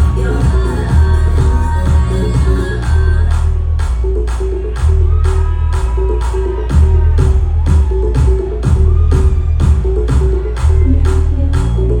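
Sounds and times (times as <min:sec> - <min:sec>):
person singing: 0:00.0 - 0:03.6
pulsing bass line: 0:00.0 - 0:12.0.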